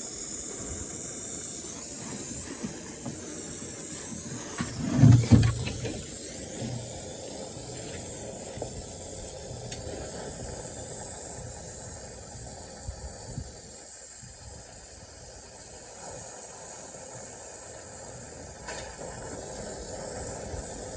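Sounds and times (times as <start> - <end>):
torch flame hissing: 0.0 - 20.9
short low bump: 4.6 - 6.1.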